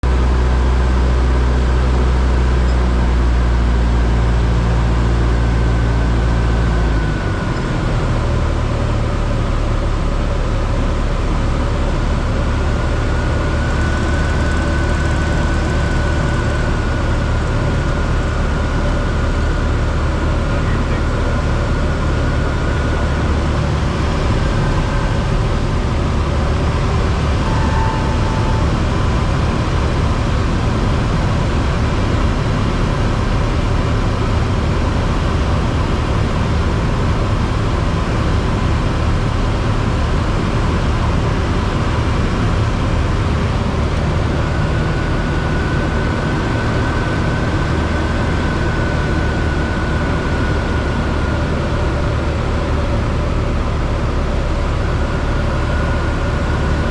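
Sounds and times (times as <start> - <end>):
aircraft engine idling: 0.0 - 56.9.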